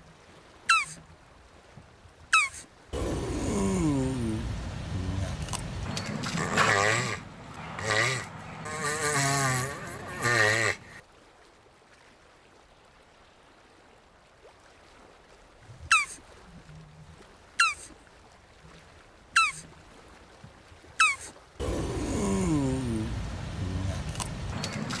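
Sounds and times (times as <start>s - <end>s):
faint low clucks: 0.0s - 11.0s, 15.6s - 25.0s
tortoise groaning call: 0.7s - 1.0s, 2.4s - 11.0s, 15.8s - 16.2s, 17.6s - 17.9s, 19.4s - 19.6s, 21.0s - 25.0s.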